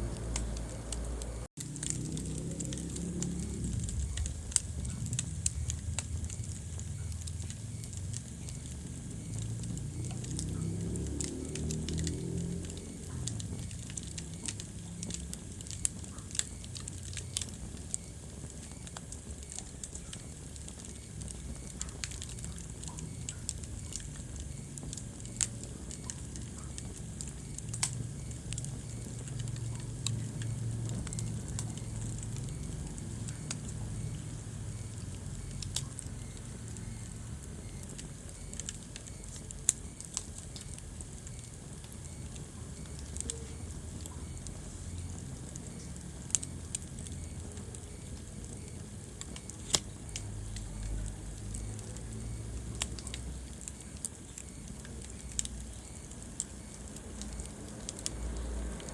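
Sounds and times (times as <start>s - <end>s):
wood fire crackling: 0.0s - 58.9s.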